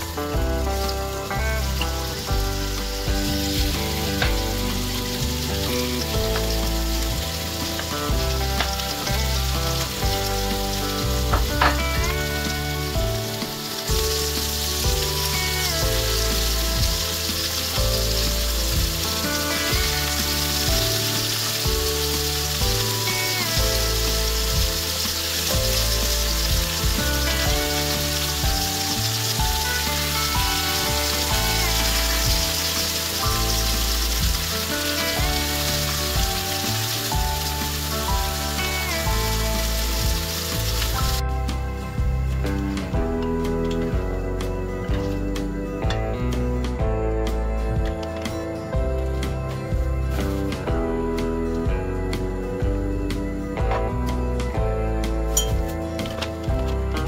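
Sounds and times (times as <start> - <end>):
meat sizzling in a frying pan: 0.0 - 45.9
background music: 0.0 - 57.0.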